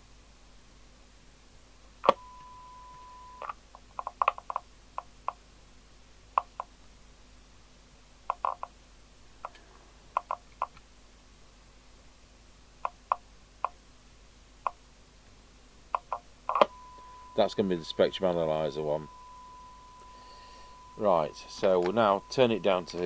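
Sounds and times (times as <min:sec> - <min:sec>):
steady single-pitched beep: 0:02.1 - 0:03.4, 0:16.6 - 0:23.0
equipment controls clicking: 0:21.4 - 0:23.0.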